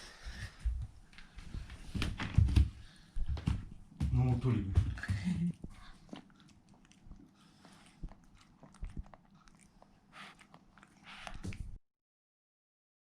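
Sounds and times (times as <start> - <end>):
person biting and chewing: 6.0 - 11.7.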